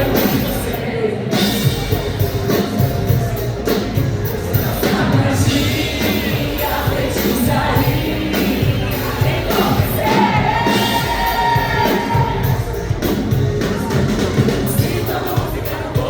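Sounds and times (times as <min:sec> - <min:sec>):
band playing: 0:00.0 - 0:16.0
crowd noise: 0:00.0 - 0:16.0
woman singing pop song: 0:04.8 - 0:12.6.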